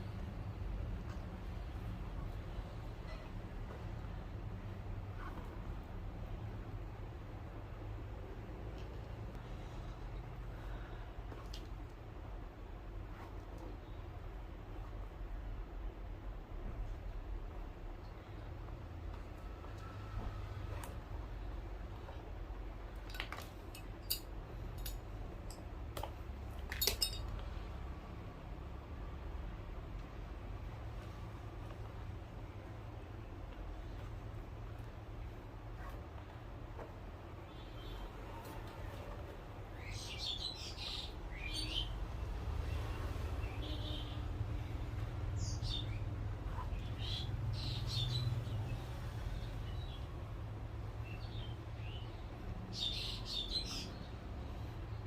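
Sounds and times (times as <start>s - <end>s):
low steady hum: 0.0s - 55.0s
small tools clicking and tapping: 23.0s - 27.4s.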